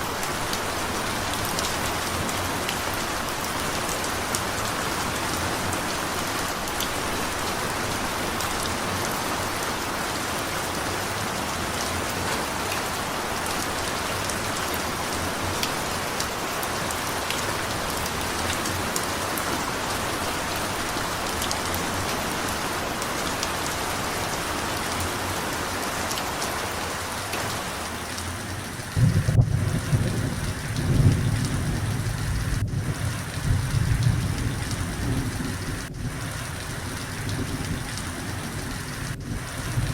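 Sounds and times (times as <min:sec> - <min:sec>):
rain falling: 0:00.0 - 0:39.9
rolling thunder: 0:28.4 - 0:39.9.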